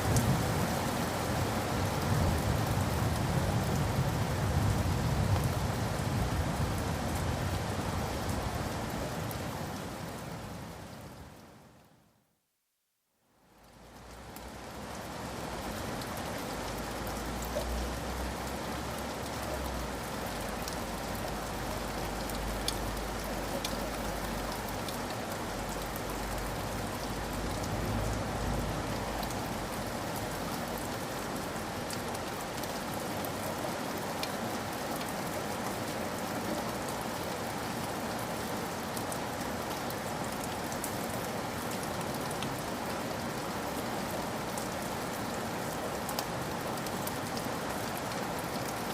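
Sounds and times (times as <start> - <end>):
steady rain falling: 0.0 - 48.9
rain drop ticks: 16.0 - 30.7, 34.2 - 35.8.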